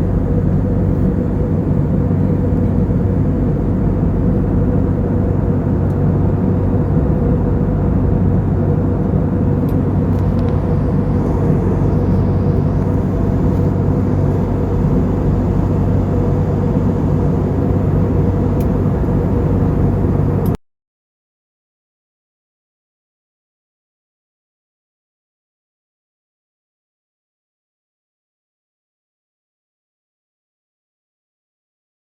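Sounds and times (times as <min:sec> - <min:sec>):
airliner engine drone: 0:00.0 - 0:20.6.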